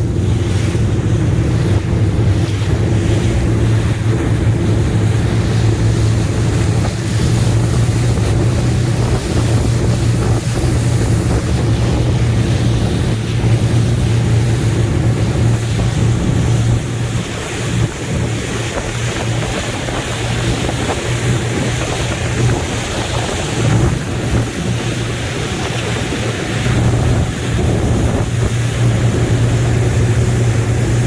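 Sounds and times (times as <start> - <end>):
motorboat engine humming: 0.0 - 31.0
rushing water: 0.0 - 31.0
wind on microphone: 0.0 - 31.0.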